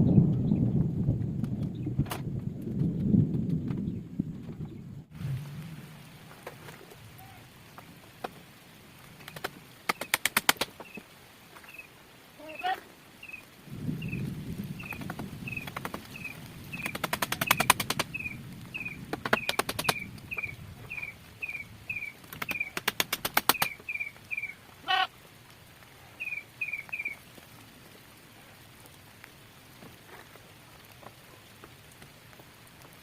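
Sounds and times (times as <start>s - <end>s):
bird chirping: 11.6s - 24.6s, 26.2s - 27.2s
rapid sharp rattling clicks: 15.0s - 18.2s.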